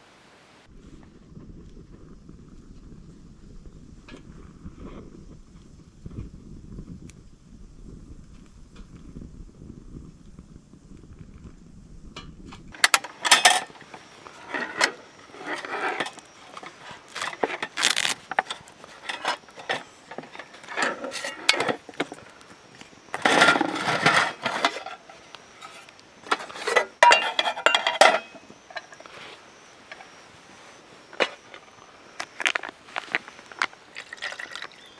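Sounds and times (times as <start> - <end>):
metal cookware clinking: 12.8 - 22.4, 23.1 - 29.1.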